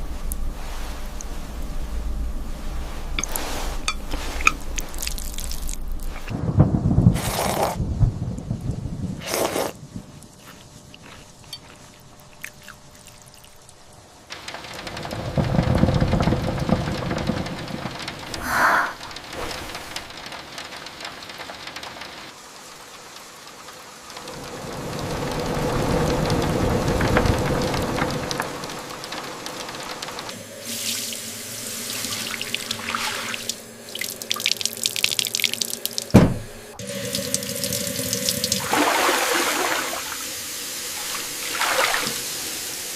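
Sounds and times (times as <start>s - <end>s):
steady rain: 0.0s - 11.4s, 13.8s - 36.2s, 36.8s - 42.9s
thunder rolling: 5.7s - 10.2s, 14.3s - 22.3s, 24.2s - 30.3s.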